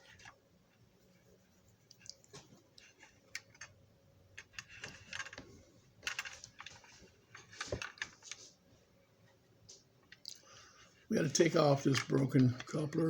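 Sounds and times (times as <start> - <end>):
toy parts clicking and rattling: 4.4 - 5.4, 6.0 - 8.2.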